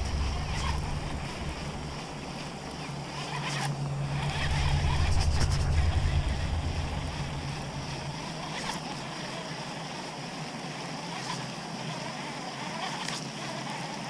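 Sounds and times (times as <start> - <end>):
water noise: 0.0 - 10.4
wind: 0.0 - 14.0.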